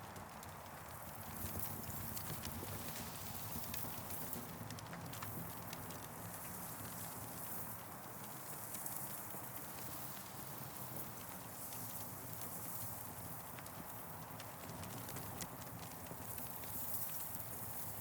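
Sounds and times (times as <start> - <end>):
campfire crackling and popping: 3.6 - 18.0.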